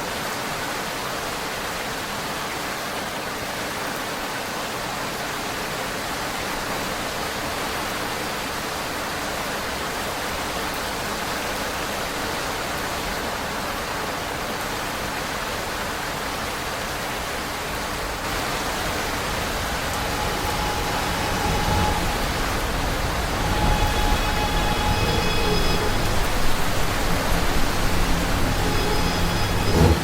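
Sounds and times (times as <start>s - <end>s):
subway train running: 16.6s - 30.0s
thin squeal: 18.3s - 30.0s.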